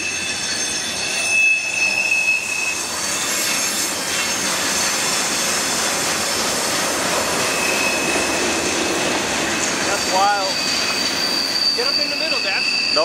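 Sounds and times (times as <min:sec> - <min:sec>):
freight train rolling past: 0:00.0 - 0:13.0
steel wheel squeal: 0:00.0 - 0:13.0.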